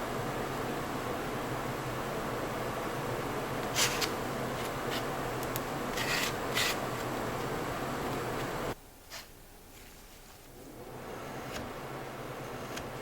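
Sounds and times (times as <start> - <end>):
short scraping sounds: 3.7 - 5.1, 5.9 - 6.8.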